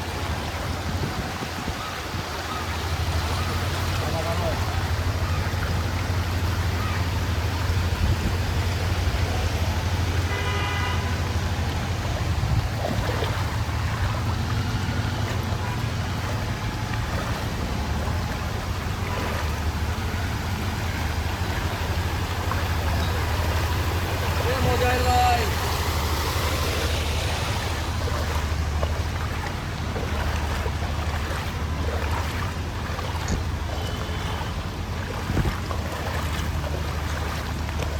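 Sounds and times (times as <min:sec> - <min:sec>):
floodwater rushing: 0:00.0 - 0:37.9
street traffic hum and hiss: 0:00.0 - 0:37.9
wind rumble on microphone: 0:00.0 - 0:37.9
vehicle horn honk: 0:10.2 - 0:11.3, 0:33.7 - 0:34.6.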